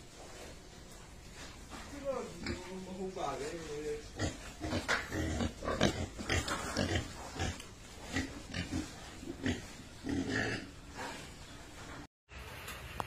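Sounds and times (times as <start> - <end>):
pigs grunting: 4.1 - 11.4.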